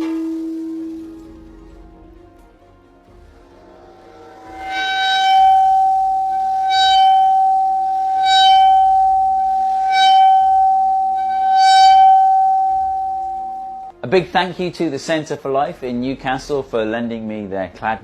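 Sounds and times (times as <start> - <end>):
buzzing overtone: 0.0 - 1.7, 3.1 - 14.0
metal plate ringing high tone: 0.0 - 1.7, 3.6 - 13.9.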